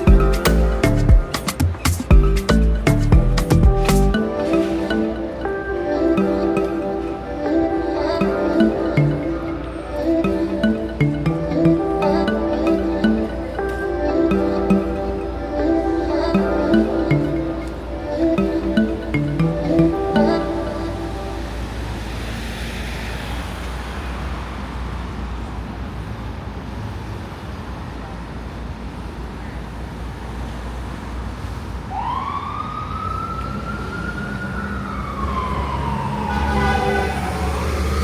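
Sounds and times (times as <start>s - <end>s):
street traffic: 0.0s - 38.0s
emergency siren wailing: 4.1s - 22.2s, 31.9s - 38.0s.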